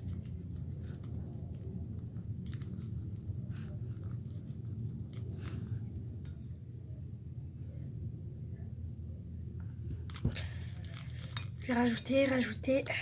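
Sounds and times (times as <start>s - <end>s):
slime paste stirred in bowl: 0.0s - 5.8s
steady low hum: 0.0s - 13.0s.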